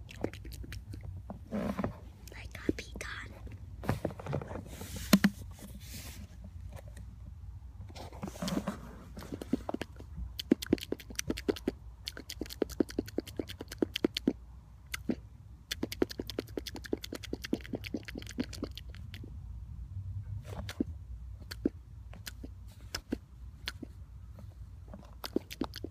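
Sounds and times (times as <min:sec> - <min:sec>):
person making mouth clicks: 0:00.0 - 0:01.0, 0:09.4 - 0:19.2, 0:20.6 - 0:24.0, 0:25.2 - 0:25.9.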